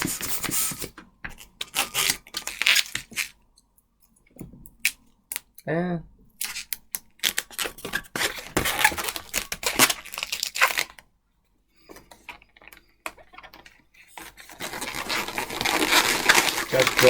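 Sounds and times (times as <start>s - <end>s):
balloon rubbing and squeaking: 7.8s - 10.7s, 14.0s - 17.0s.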